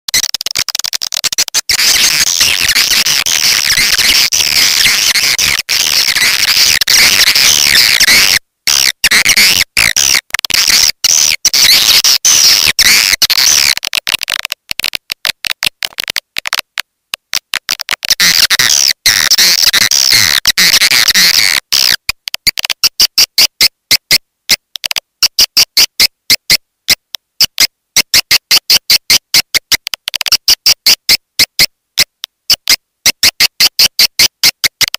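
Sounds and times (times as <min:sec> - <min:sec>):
rapid evenly spaced chirps: 0:00.1 - 0:13.8.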